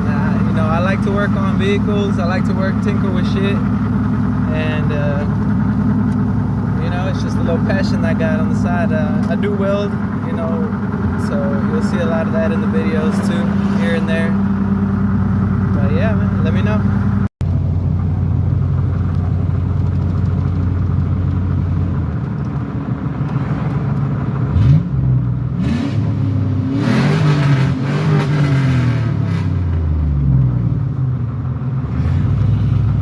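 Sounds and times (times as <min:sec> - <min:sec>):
loud truck engine revving: 0:00.0 - 0:17.3, 0:24.5 - 0:30.8, 0:31.8 - 0:33.0.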